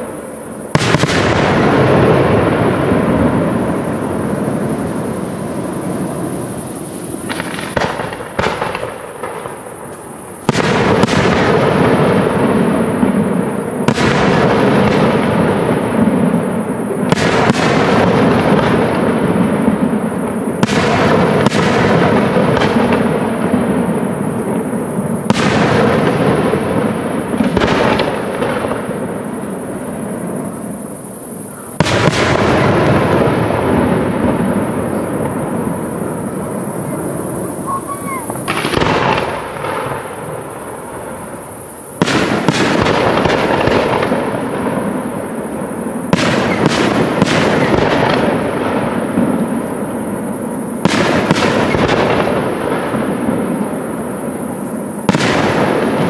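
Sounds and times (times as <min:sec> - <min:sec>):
firework shells bursting: 0:00.0 - 0:13.2
rolling echo: 0:00.0 - 0:56.0.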